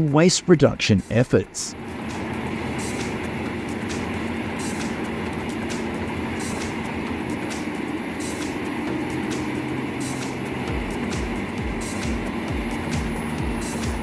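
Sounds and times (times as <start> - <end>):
heavy machinery engine drone: 0.0 - 14.0.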